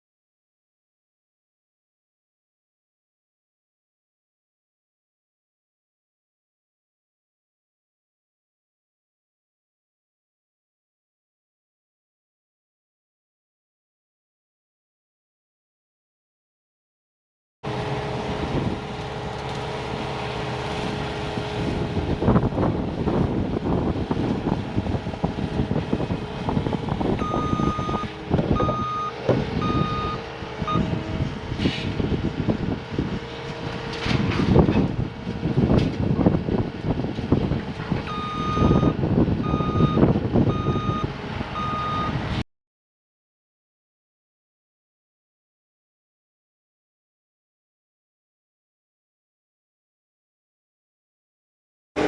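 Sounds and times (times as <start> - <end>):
constant machine whine: 17.6 - 42.4
loader engine drone: 17.6 - 42.4
reversing alarm beeping: 27.2 - 31.0, 38.1 - 42.2.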